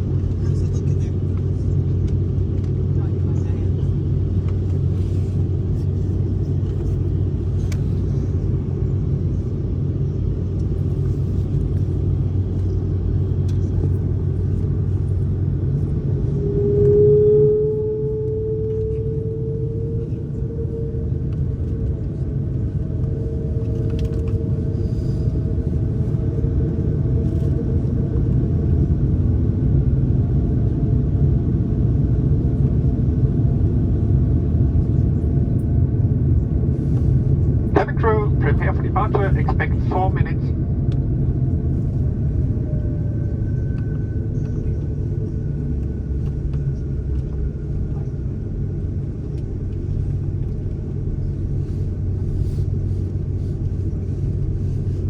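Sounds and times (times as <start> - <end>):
airliner cabin rumble: 0.0 - 55.0
rising whine: 13.5 - 29.1.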